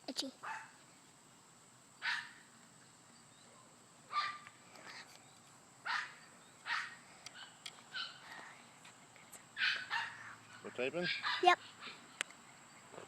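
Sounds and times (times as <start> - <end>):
dog barking: 0.4 - 0.8, 2.0 - 2.4, 4.1 - 4.5, 5.9 - 8.2, 9.6 - 12.0.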